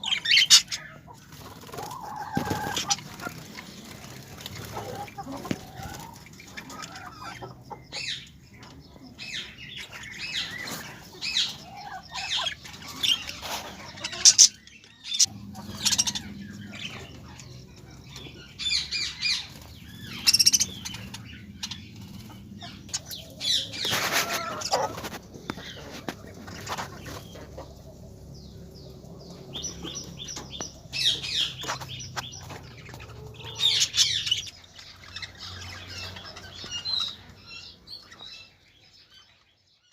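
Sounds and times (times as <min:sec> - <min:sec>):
birds chirping: 0:00.0 - 0:39.9
wings flapping: 0:01.3 - 0:06.2.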